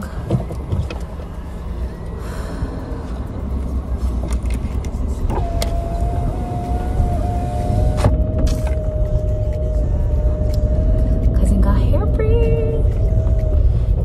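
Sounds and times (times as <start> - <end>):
car road and engine rumble: 0.0 - 14.0
steady high tone: 5.2 - 14.0.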